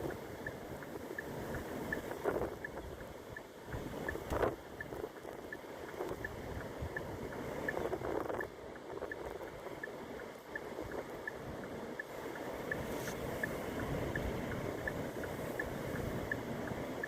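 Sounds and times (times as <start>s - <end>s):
faint high ticking: 0.0s - 17.0s
wind buffeting microphone: 0.0s - 17.0s.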